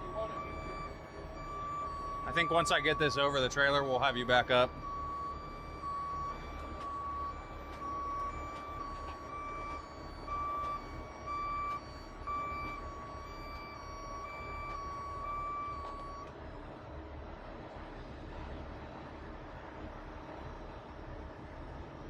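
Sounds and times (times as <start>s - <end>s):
truck backup alarm beeping: 0.0s - 17.2s
diesel engine running: 0.0s - 22.0s.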